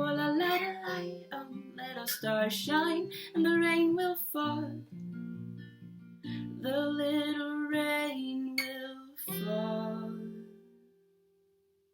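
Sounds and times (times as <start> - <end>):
woman singing wordlessly: 0.0 - 4.9, 6.5 - 10.6
acoustic guitar strumming: 0.0 - 7.3.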